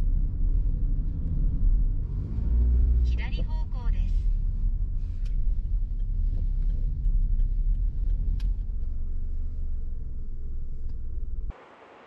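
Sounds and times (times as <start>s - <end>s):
vehicle engine rumbling: 0.0s - 12.0s
faint light ticks: 5.2s - 9.0s.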